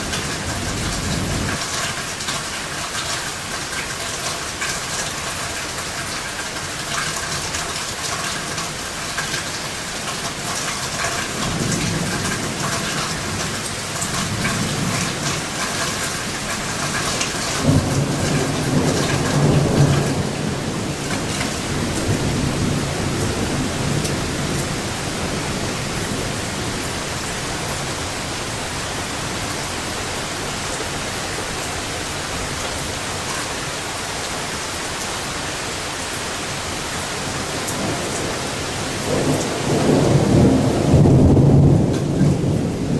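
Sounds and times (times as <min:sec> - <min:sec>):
thunder rumbling and cracking: 0:00.0 - 0:01.8, 0:10.2 - 0:33.5, 0:37.2 - 0:42.9
heavy rain falling: 0:00.0 - 0:42.9.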